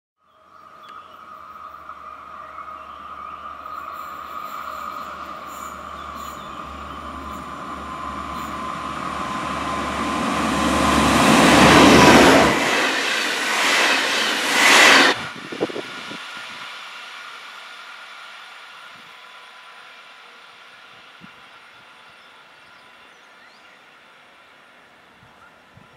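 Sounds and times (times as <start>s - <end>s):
steady whine: 0.4s - 25.1s
diesel engine hum: 1.0s - 21.2s
train wheels rushing on rail: 1.2s - 25.5s.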